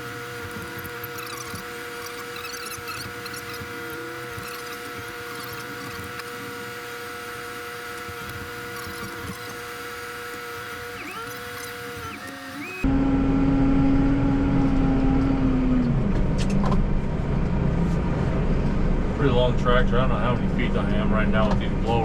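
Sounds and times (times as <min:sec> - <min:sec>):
tractor idling hum: 0:12.8 - 0:22.0.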